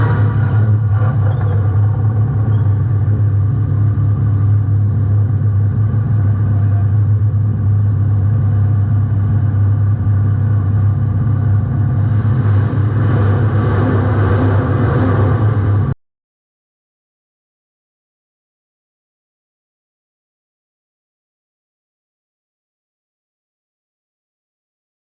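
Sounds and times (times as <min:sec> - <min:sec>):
race car engine rumble: 0:00.0 - 0:16.0.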